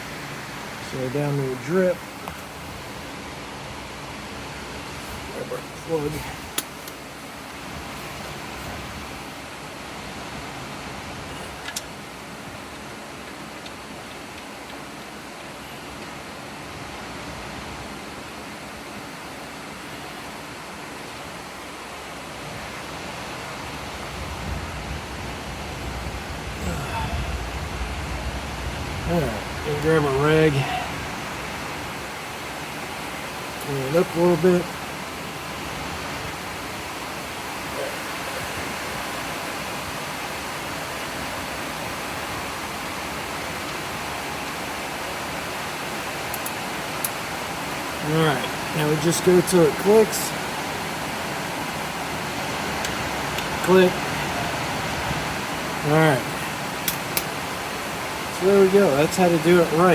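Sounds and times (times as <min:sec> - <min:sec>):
heavy rain hissing: 0:00.0 - 0:59.9
low thunder rumble: 0:23.8 - 0:32.2.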